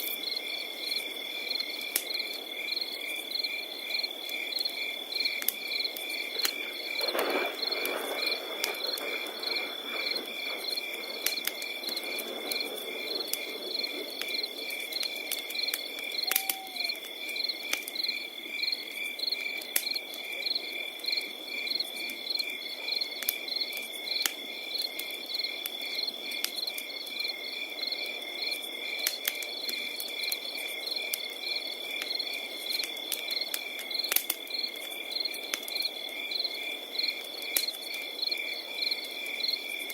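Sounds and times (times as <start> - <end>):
cricket pulsed chirping: 0.0 - 39.9
fire crackling and popping: 0.0 - 39.9
cricket high trill: 16.2 - 17.0.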